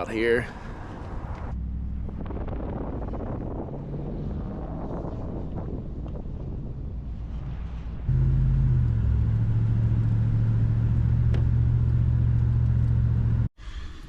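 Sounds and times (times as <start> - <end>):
wind buffeting microphone: 0.6 - 8.2
truck driving drone from cab: 0.6 - 13.5.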